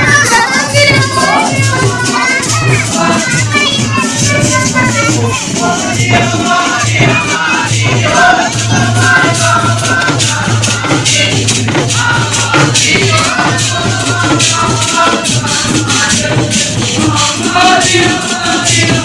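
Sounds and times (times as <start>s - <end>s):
jingling hand percussion: 0.0s - 19.0s
person singing folk song: 0.0s - 19.0s.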